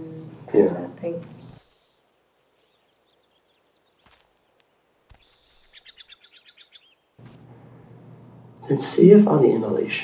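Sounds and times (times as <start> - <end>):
songbird singing faintly: 0.0 - 7.2
low room hum: 7.2 - 10.0.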